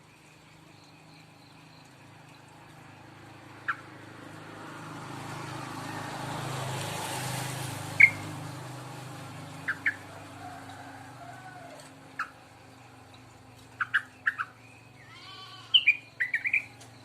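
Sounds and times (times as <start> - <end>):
passing vehicle: 1.6 - 17.0
bird chirps: 8.0 - 8.3, 9.6 - 10.0, 12.2 - 12.4, 13.1 - 17.0.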